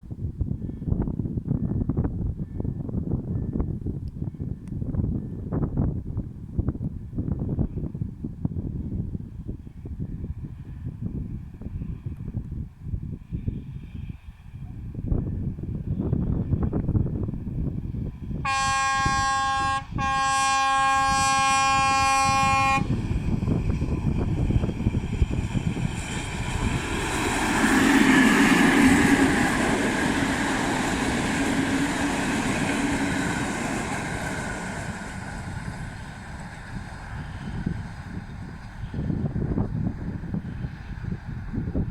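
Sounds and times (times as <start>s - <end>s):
train passing rumble: 3.2s - 41.9s
locomotive horn blasts: 18.5s - 23.0s.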